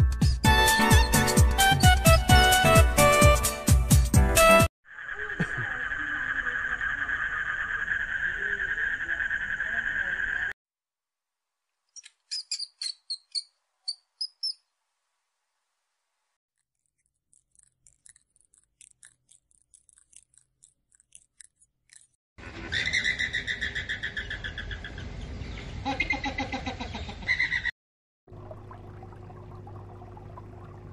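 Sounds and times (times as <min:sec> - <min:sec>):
high bird-like chirps: 0:12.0 - 0:14.7.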